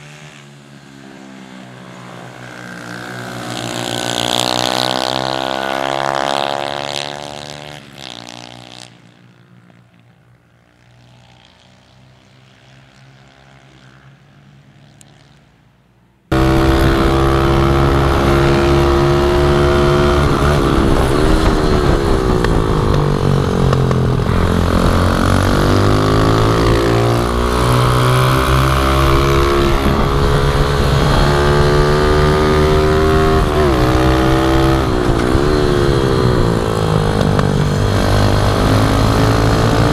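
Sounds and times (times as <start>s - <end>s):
close pit bike engine revving: 16.3s - 39.9s
pit bike engine passing: 16.3s - 39.9s.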